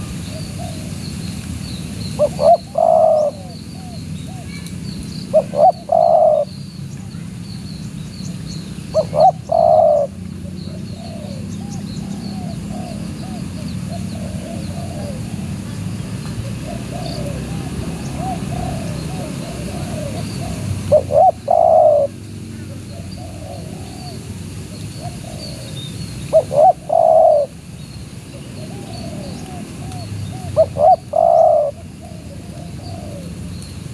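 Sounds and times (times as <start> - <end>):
small birds twittering: 0.0 - 33.9
dove cooing: 2.2 - 4.5, 5.3 - 6.5, 8.9 - 15.8, 16.4 - 27.6, 28.3 - 33.4.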